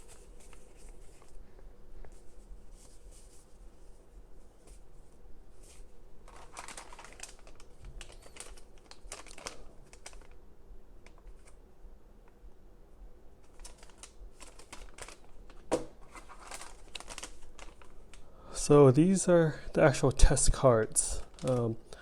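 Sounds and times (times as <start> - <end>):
packaging rustling and crinkling: 0.0 - 3.6, 5.5 - 10.4, 13.4 - 18.8, 20.9 - 22.0
object set down knock: 15.7 - 16.0.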